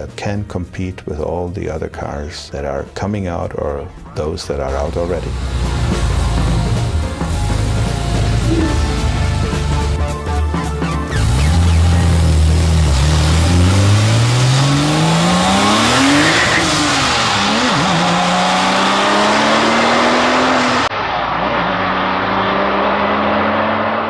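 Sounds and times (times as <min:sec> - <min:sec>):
sports car engine accelerating: 0:05.0 - 0:24.0.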